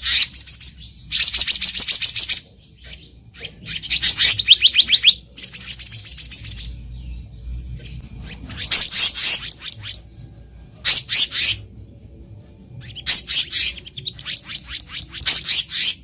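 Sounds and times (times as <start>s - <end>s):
bird calling high sharp notes: 7.9s - 10.2s.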